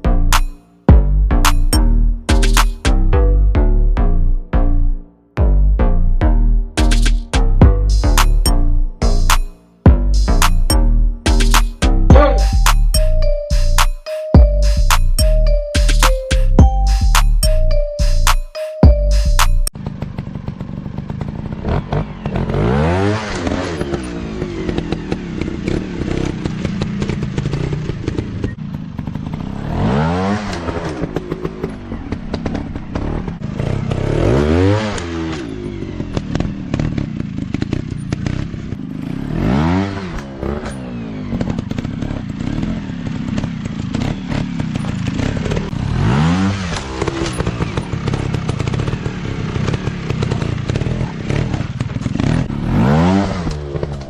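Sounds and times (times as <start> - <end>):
steady engine rumble: 18.9 - 34.4, 35.0 - 54.0
motorcycle engines revving: 19.8 - 54.0
bikes clattering on rough ground: 40.3 - 45.8, 46.6 - 52.5.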